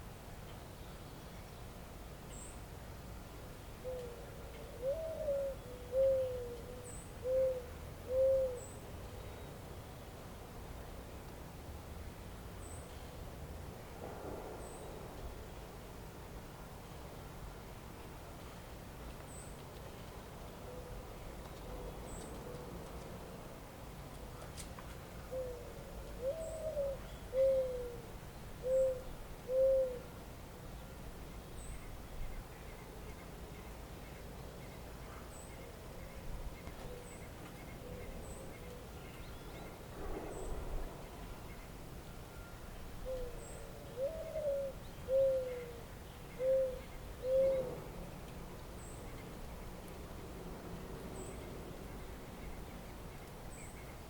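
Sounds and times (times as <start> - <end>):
steady outdoor hiss: 0.0 - 54.0
dove cooing: 3.8 - 8.7, 25.3 - 30.1, 43.0 - 47.9
bird hooting call: 3.8 - 8.8, 25.2 - 30.1, 42.3 - 47.9.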